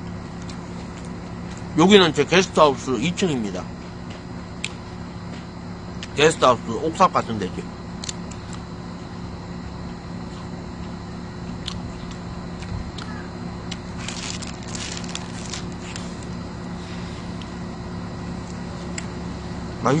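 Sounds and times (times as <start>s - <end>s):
low hum: 0.0s - 20.0s
crisp crunching while chewing: 8.0s - 8.6s, 10.8s - 16.4s.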